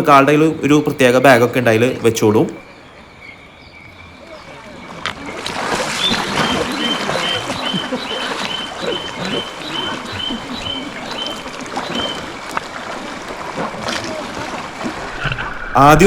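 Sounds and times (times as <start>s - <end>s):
running river water: 0.0s - 16.0s
indistinct voices: 4.2s - 16.0s.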